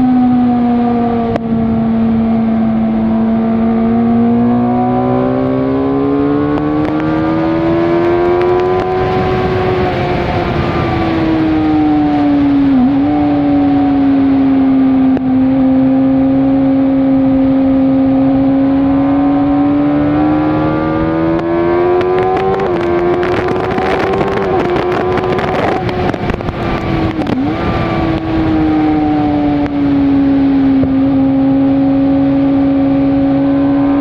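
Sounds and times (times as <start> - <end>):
motorcycle engine at high revs: 0.0 - 34.0.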